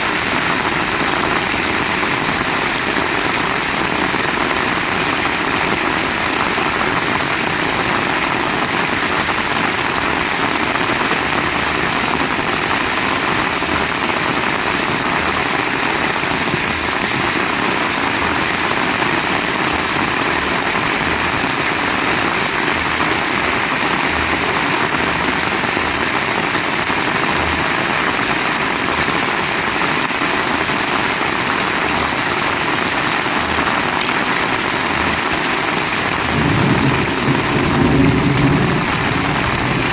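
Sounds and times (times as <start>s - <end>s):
heavy rain falling: 0.0s - 39.9s
low rumble: 36.3s - 39.9s.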